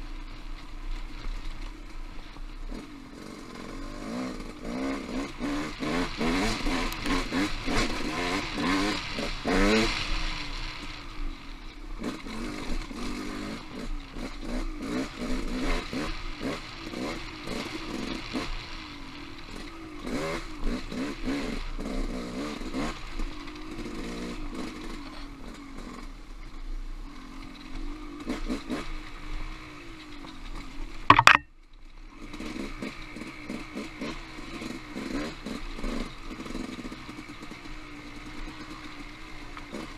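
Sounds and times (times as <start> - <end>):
motorcycle engine revving: 2.7 - 11.0, 12.0 - 26.0, 32.2 - 39.9
loud sharp knock: 31.1 - 31.4.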